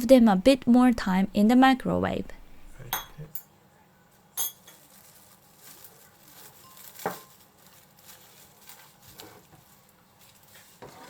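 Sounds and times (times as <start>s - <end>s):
soft kitchen taps and rustles: 4.4s - 11.0s.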